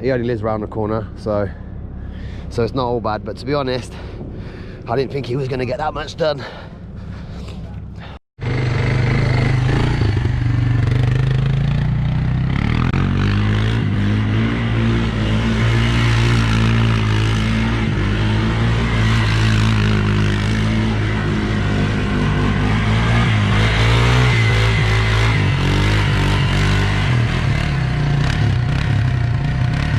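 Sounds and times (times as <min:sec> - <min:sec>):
engine running: 0:06.4 - 0:29.9.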